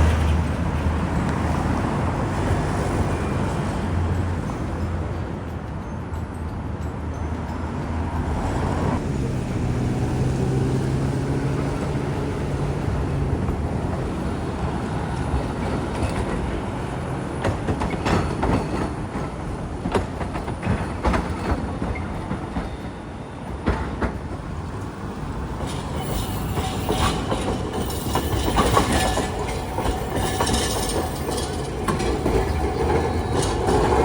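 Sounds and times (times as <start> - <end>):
streetcar running hum: 0.0 - 34.0
wheels clacking over track joints: 10.2 - 34.0.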